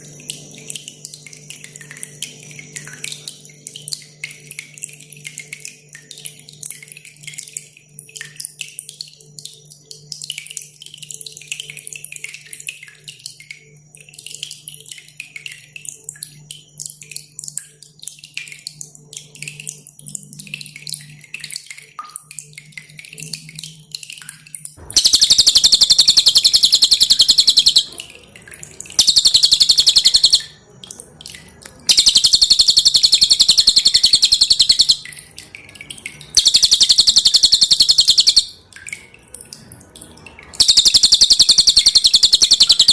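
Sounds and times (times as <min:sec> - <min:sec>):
dripping water: 0:00.0 - 0:42.9
bird singing fast trill: 0:24.8 - 0:28.0, 0:28.9 - 0:30.6, 0:31.9 - 0:35.2, 0:36.2 - 0:38.6, 0:40.6 - 0:42.9
short high chirps: 0:24.8 - 0:28.0, 0:29.0 - 0:30.6, 0:31.9 - 0:35.0, 0:36.4 - 0:38.6, 0:40.6 - 0:42.9.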